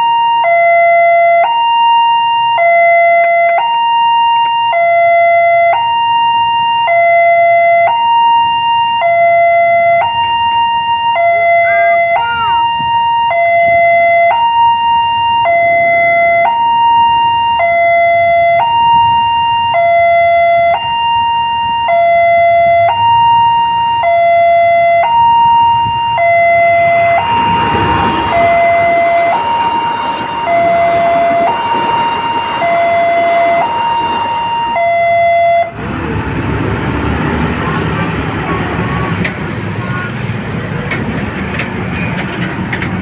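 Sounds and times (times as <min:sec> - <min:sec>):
level crossing two-tone alarm: 0:00.0 - 0:39.3
train passing rumble: 0:25.6 - 0:43.0.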